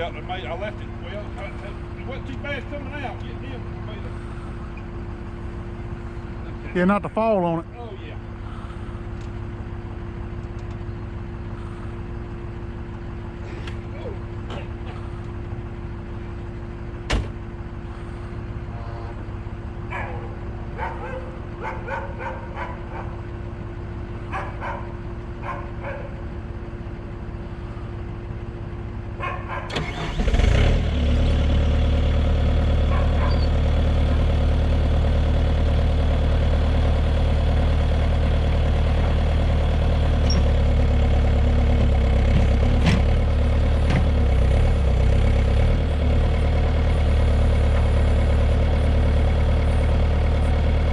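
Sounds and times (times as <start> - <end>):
diesel engine cranking and running: 0.0 - 50.9
engine idling: 0.0 - 50.9.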